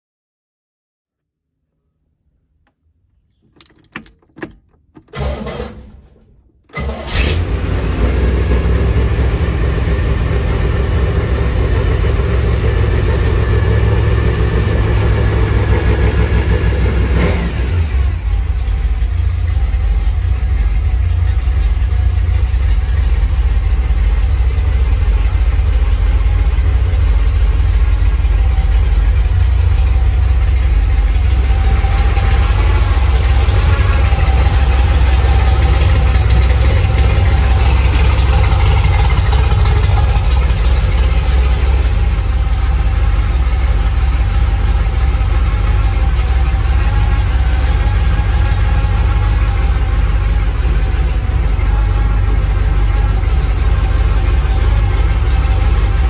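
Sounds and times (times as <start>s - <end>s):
car engine running: 3.3s - 56.0s
engine starter cranking: 3.4s - 7.8s.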